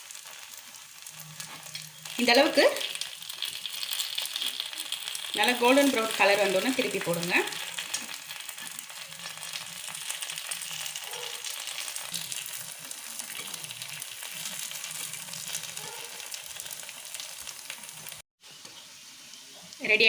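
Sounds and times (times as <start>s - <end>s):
batter sizzling in oil: 0.0s - 20.0s.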